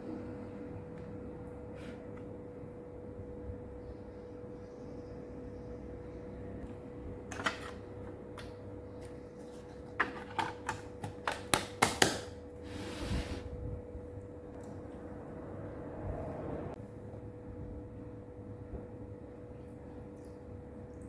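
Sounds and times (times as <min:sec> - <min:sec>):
faint steady hum: 0:00.0 - 0:11.4.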